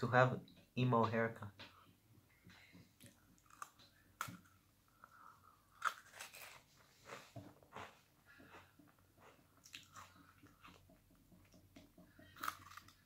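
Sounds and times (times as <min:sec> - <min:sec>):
person chewing crunchy cookie: 0:03.0 - 0:13.0.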